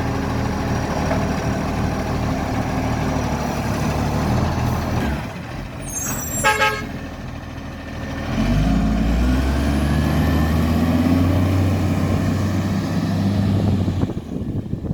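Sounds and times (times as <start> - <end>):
truck diesel engine running: 0.0 - 14.9
truck horn toot: 5.9 - 7.0.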